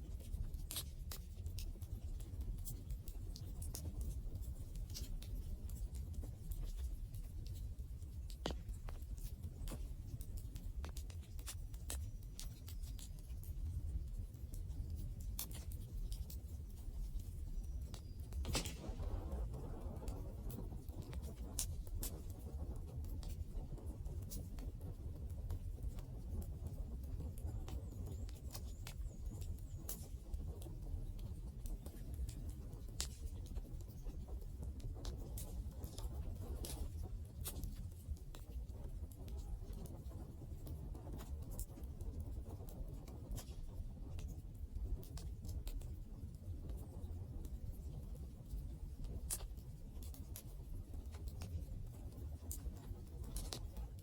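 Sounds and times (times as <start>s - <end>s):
low fire rumble: 0.0s - 54.0s.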